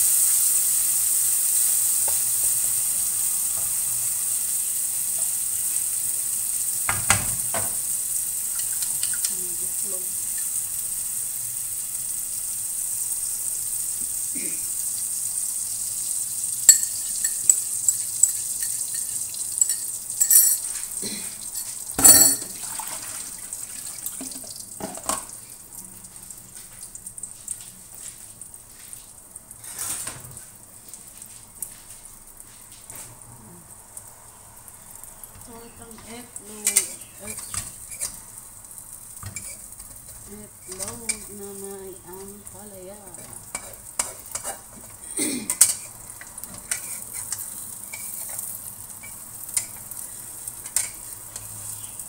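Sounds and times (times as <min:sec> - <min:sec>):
egg sizzling in a frying pan: 0:00.0 - 0:52.0
bowl and utensils clinking: 0:16.7 - 0:20.8, 0:21.5 - 0:22.6.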